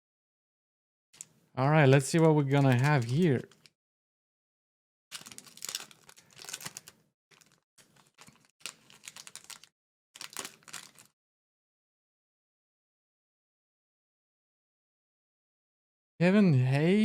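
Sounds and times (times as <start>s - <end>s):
wrapper and cards rustling: 2.1s - 3.8s, 5.1s - 11.1s.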